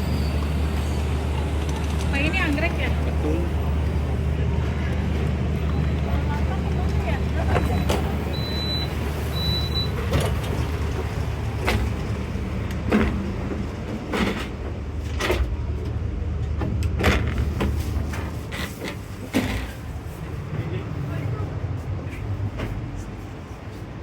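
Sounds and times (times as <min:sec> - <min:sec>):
train carriage rumble: 0:00.0 - 0:24.0
knocks and clatter: 0:10.1 - 0:19.8.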